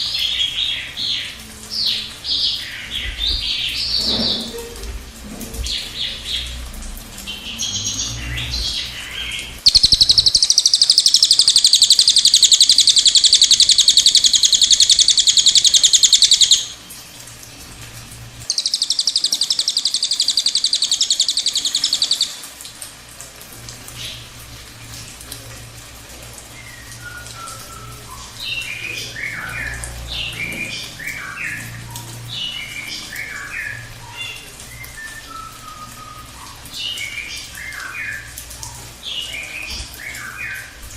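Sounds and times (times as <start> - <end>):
bird high chirps: 8.1 - 16.8, 18.5 - 22.4
songbird rolling trill: 9.7 - 16.7.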